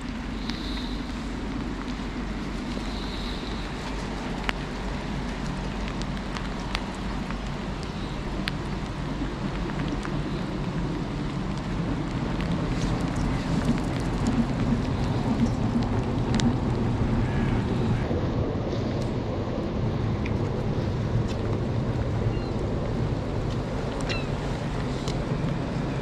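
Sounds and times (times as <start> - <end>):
raindrop taps: 0.0 - 18.0, 20.2 - 26.0
low rumble: 0.0 - 26.0
steady rain: 0.0 - 26.0
wind on microphone: 0.0 - 26.0.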